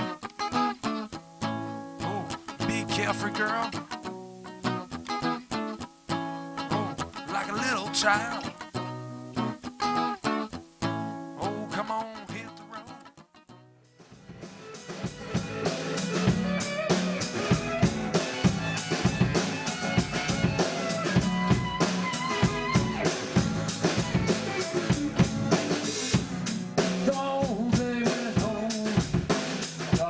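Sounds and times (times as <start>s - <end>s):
live band playing: 0.0s - 12.9s, 14.0s - 30.0s
drum kit beat: 1.4s - 4.8s, 6.1s - 8.9s, 14.0s - 30.0s.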